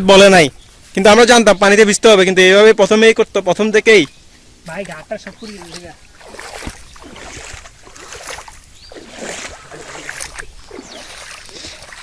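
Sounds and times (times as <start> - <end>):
feet splashing through stream water: 4.0 - 12.0.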